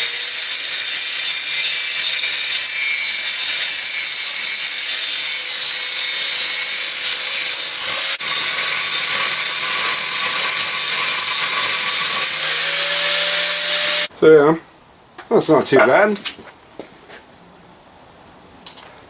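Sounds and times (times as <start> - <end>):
angle grinder grinding metal: 0.0 - 14.1.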